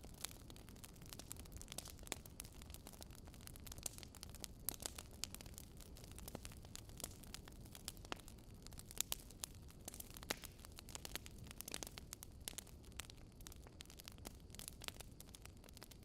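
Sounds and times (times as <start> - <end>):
fire crackling: 0.0 - 16.0.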